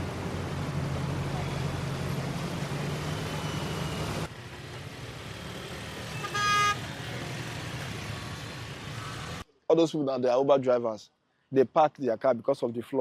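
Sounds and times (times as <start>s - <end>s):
street traffic hum: 0.0s - 10.7s
vehicle horn: 6.1s - 6.9s.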